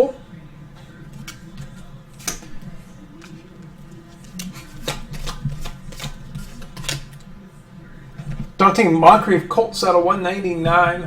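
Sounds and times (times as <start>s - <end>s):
trading cards clicking and snapping: 1.1s - 7.3s.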